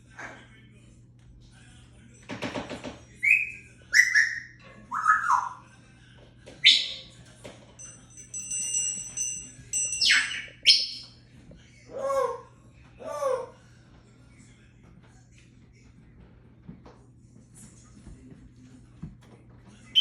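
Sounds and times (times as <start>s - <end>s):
parrot calling and whistling: 3.2s - 5.6s, 6.6s - 7.1s, 10.0s - 11.2s.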